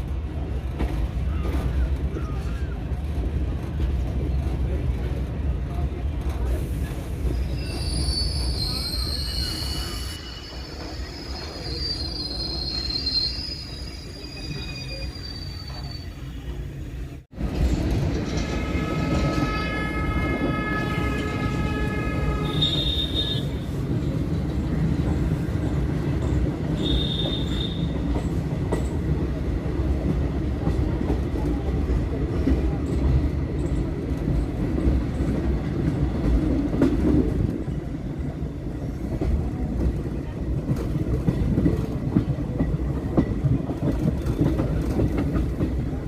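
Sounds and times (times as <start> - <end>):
train rumbling on rails: 0.0 - 46.0
high-pitched squeals: 7.4 - 16.6
train horn: 18.5 - 23.6, 26.8 - 28.0.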